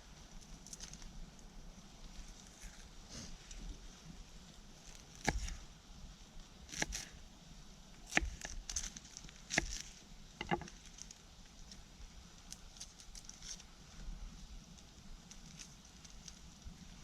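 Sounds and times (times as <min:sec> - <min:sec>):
knife chopping on wooden board: 0:05.2 - 0:05.6, 0:08.1 - 0:08.6.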